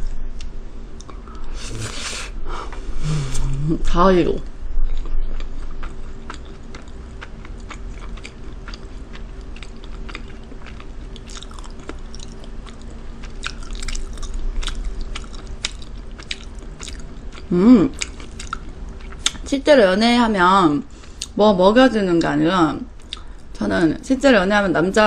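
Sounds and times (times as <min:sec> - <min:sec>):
faint steady hum: 0:00.0 - 0:25.0
wet mouth chewing clicks: 0:04.9 - 0:19.5.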